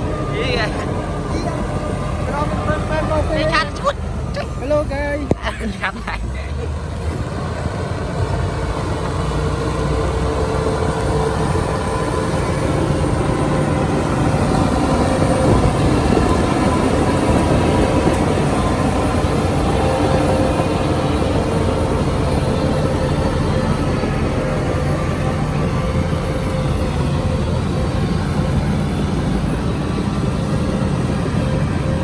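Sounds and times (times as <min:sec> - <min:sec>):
heavy diesel engine running: 0:00.0 - 0:32.0.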